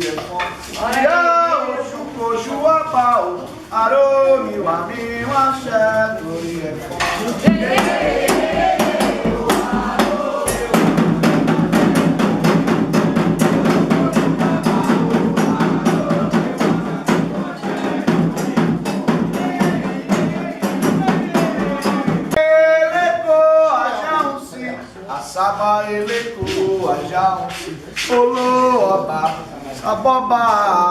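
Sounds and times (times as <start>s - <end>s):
voices singing: 0.0s - 30.9s
hand drums beating fast: 7.4s - 22.4s.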